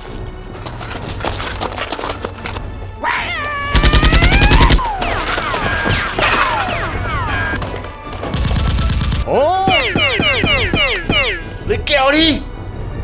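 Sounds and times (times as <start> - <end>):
background music: 0.0 - 13.0
machine gun fire effects: 3.8 - 4.8.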